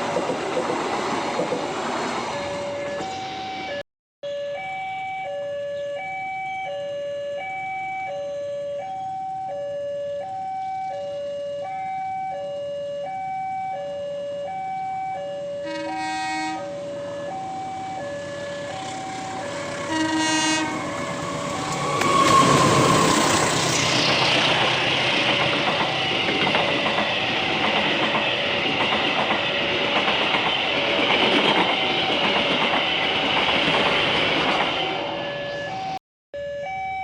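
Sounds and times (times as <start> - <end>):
train rumble: 0.0 - 3.8, 15.6 - 36.0
level crossing two-tone alarm: 2.3 - 23.1, 34.8 - 37.0
train horn: 15.5 - 23.4.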